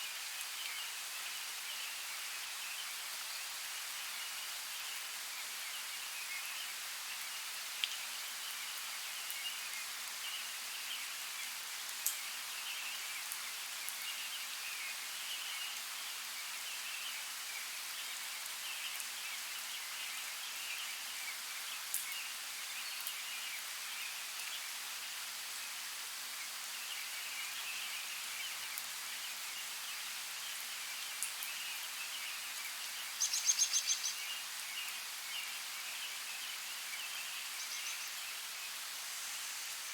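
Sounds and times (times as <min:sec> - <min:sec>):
faint bird chirps: 0:29.6 - 0:39.9
creek water hissing: 0:33.2 - 0:39.9.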